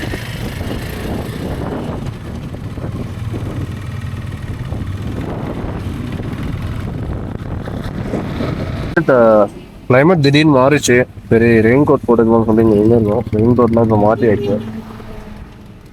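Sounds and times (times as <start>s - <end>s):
wind rushing over microphone: 0.0s - 10.0s
motorcycle engine running: 0.0s - 15.9s.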